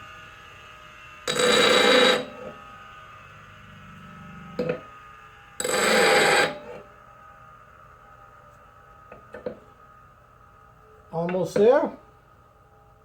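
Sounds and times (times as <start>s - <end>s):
bench grinder whining: 1.2s - 6.9s
steel grinding on wheel: 1.3s - 2.6s, 5.6s - 6.8s.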